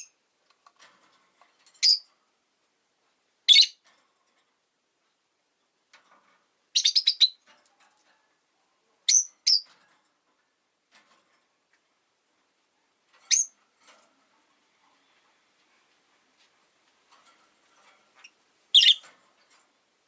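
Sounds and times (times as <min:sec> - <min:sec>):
faint clicks: 0:00.4 - 0:01.5
lovebirds giving shrill calls: 0:03.5 - 0:03.8, 0:06.8 - 0:07.4, 0:09.1 - 0:09.7, 0:13.3 - 0:13.5, 0:18.7 - 0:19.0.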